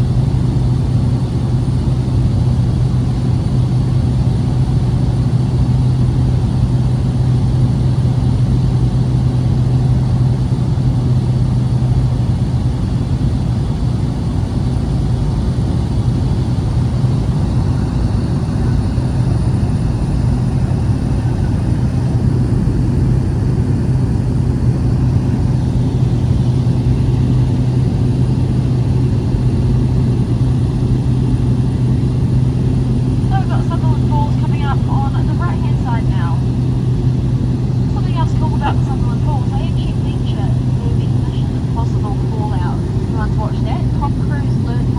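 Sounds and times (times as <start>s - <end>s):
propeller aircraft engine droning: 0.0s - 44.9s.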